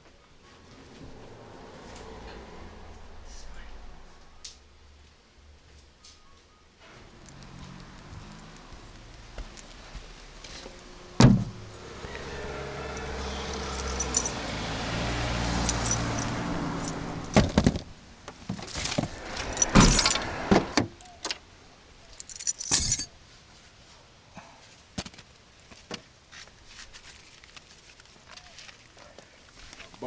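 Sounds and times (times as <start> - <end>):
car engine running: 7.0 - 20.9.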